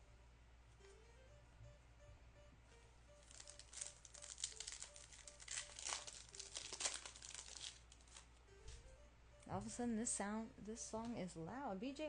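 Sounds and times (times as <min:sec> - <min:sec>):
foil wrapper crinkling: 0:03.2 - 0:08.3.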